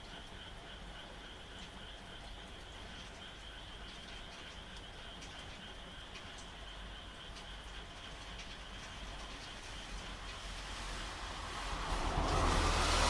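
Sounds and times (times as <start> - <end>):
frogs calling: 0.0 - 11.1
light rain: 0.0 - 13.0.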